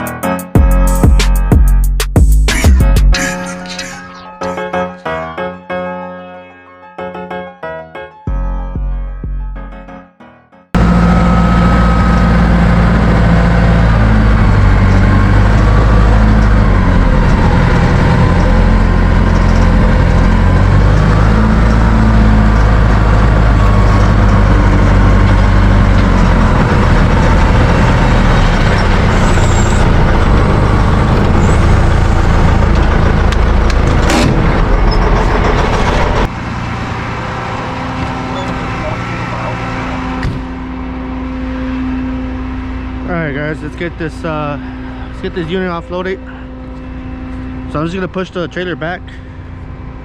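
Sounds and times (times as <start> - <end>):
heavy truck engine running: 10.7 - 50.0.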